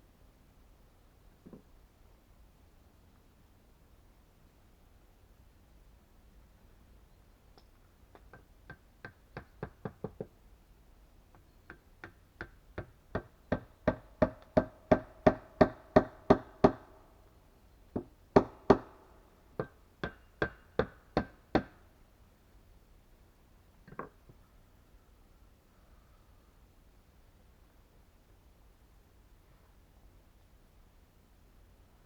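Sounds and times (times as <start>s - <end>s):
nails hammered into wood: 8.2s - 10.3s, 11.7s - 17.0s, 18.0s - 21.8s.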